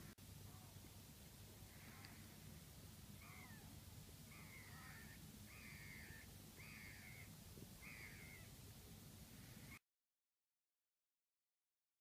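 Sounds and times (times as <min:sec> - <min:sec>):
harsh bird calls: 0:03.2 - 0:03.7, 0:04.3 - 0:08.5.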